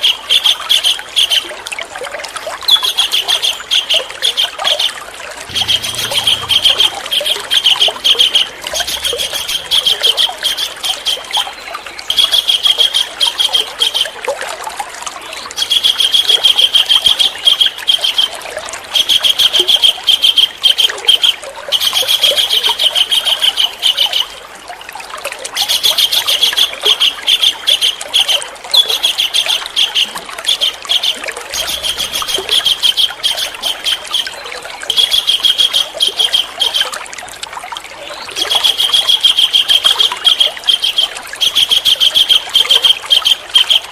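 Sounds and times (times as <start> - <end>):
songbird singing trills: 5.5 - 11.6, 28.7 - 36.8.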